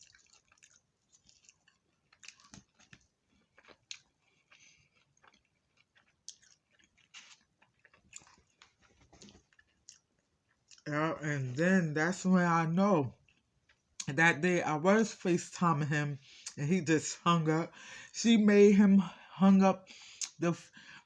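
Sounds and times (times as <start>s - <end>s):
person chewing food: 0.0s - 10.9s, 13.1s - 14.2s, 19.9s - 21.0s.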